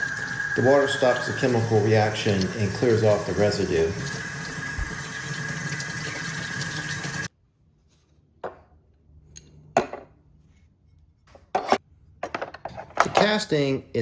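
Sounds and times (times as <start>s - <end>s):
water running: 0.0s - 7.3s.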